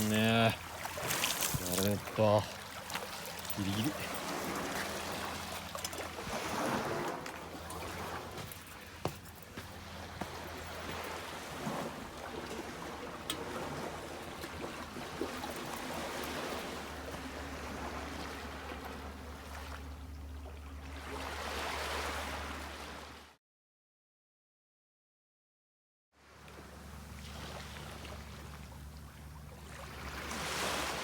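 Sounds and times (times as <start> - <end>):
small waves washing on shore: 0.0 - 19.9, 20.7 - 23.3, 26.2 - 31.0
low steady hum: 0.0 - 22.8.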